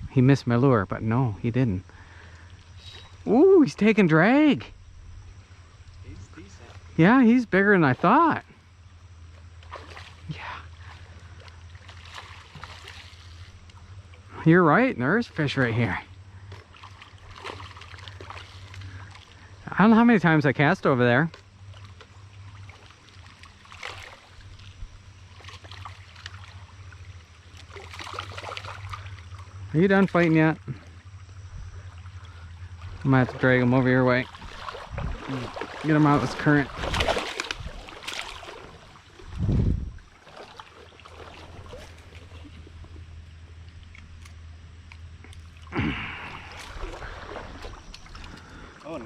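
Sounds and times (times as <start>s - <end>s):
steady low hum: 0.0s - 49.0s
faint water splashes: 5.7s - 49.0s
low rumble: 26.4s - 40.2s
river water flowing: 31.8s - 39.4s, 45.4s - 49.0s.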